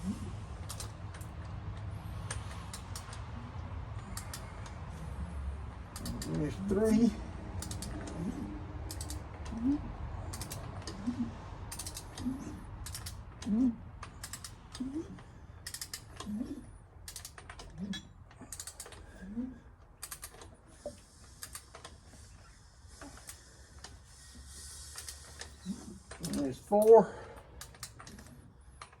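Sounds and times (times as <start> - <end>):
ratchet wrench clicking: 0.6 - 1.4, 2.2 - 3.3, 4.0 - 4.6, 7.6 - 8.2, 8.9 - 9.6, 10.3 - 11.1, 11.7 - 13.4, 14.0 - 14.8, 15.6 - 16.3, 17.0 - 17.7, 18.5 - 19.0, 20.0 - 20.5.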